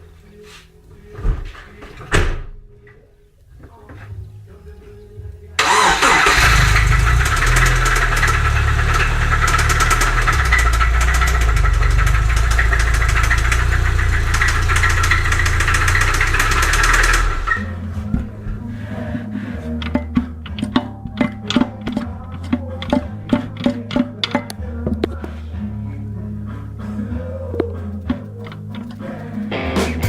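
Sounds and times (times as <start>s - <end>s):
engine rapid knocking: 5.6s - 17.6s
car engine starting: 5.6s - 18.3s.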